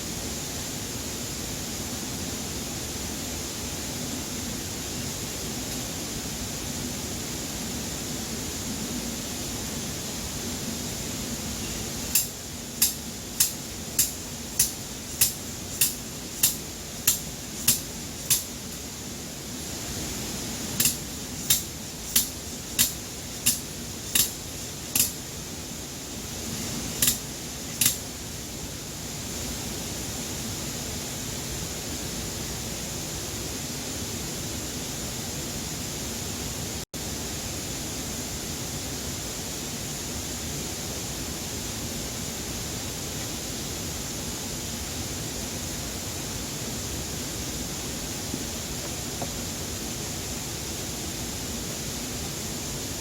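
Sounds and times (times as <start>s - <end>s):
steady rushing hiss: 0.0s - 53.0s
sharp clicks: 25.0s - 25.2s, 27.8s - 28.0s.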